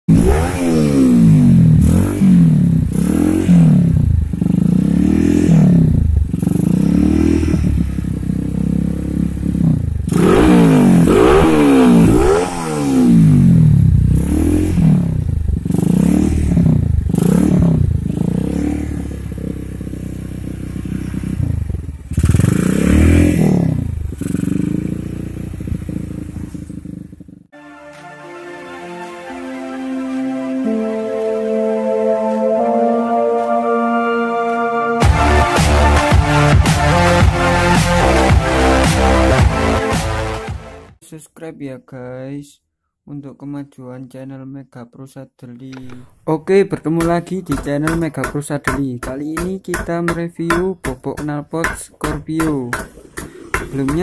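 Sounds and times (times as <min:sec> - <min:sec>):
motorcycle revving: 0:00.0 - 0:27.6, 0:35.0 - 0:40.9, 0:52.5 - 0:54.0.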